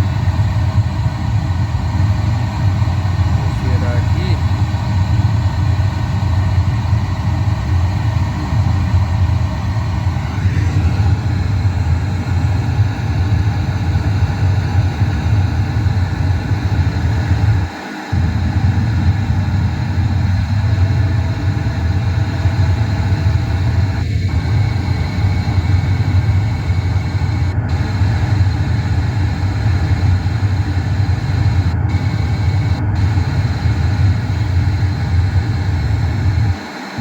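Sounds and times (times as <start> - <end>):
bass-heavy test noise: 3.3 - 4.4, 24.2 - 36.6.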